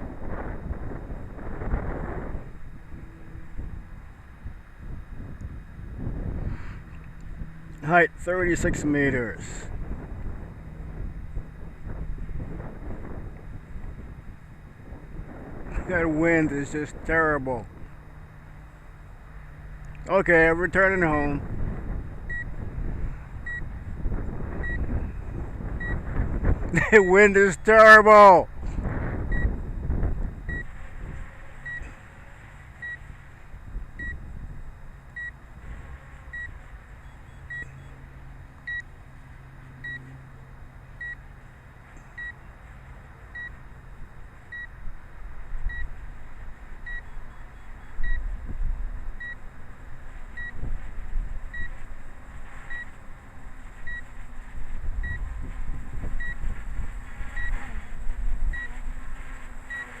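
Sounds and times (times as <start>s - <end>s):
wind buffeting microphone: 0.0s - 19.8s, 20.6s - 32.0s, 33.0s - 35.9s, 44.0s - 60.0s
short high beeps: 22.3s - 22.5s, 23.4s - 23.6s, 36.4s - 38.0s, 41.0s - 41.2s, 42.2s - 42.4s, 46.8s - 48.3s.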